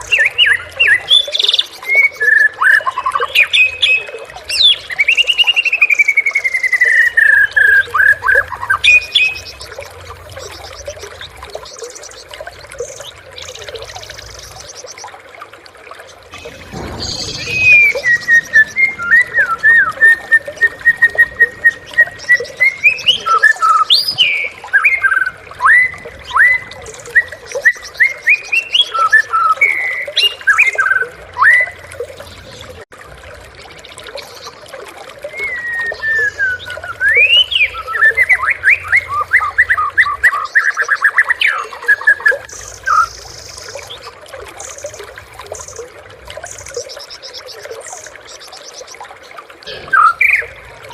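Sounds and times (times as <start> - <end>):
songbird singing whistled phrases: 16.4 - 30.8, 35.3 - 41.1.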